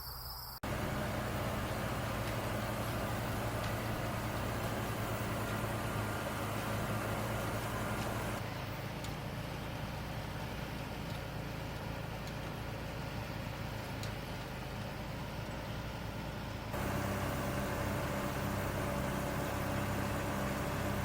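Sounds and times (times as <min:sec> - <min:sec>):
baler machinery drone: 0:00.6 - 0:09.2, 0:16.7 - 0:21.0
tractor engine running: 0:00.6 - 0:21.0.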